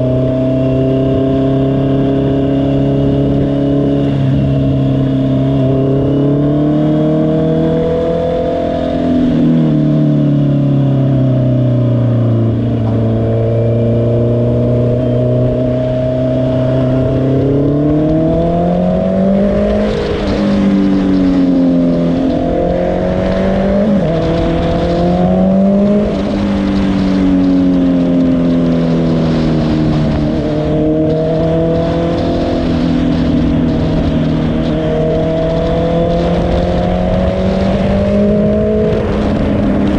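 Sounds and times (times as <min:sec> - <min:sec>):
motorcycle engine revving: 0:00.0 - 0:39.9
wind noise on microphone: 0:00.0 - 0:39.9.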